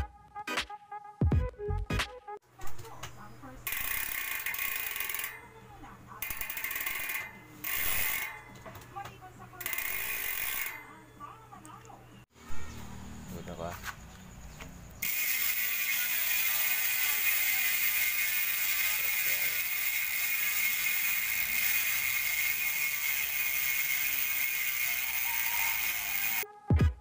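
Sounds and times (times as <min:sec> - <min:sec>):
bicycle hub ratcheting buzz: 0:03.6 - 0:05.6, 0:06.2 - 0:08.6, 0:09.6 - 0:11.0, 0:15.0 - 0:26.5.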